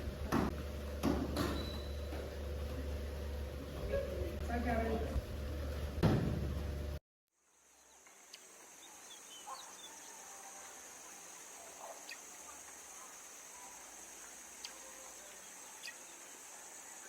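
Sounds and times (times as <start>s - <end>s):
insects droning: 7.4s - 17.0s.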